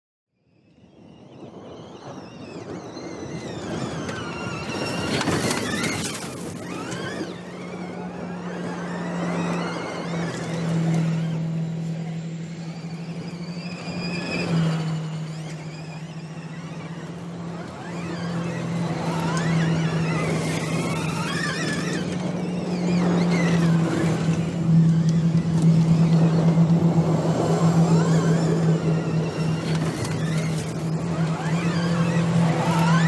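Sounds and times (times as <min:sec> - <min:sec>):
low engine drone: 0:00.5 - 0:33.0
high electric-drive whine: 0:01.2 - 0:33.0.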